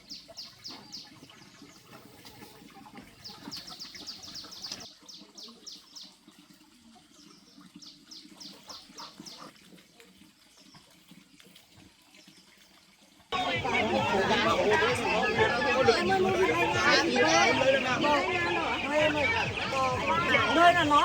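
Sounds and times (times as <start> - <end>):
ducklings peeping: 13.4 - 21.0.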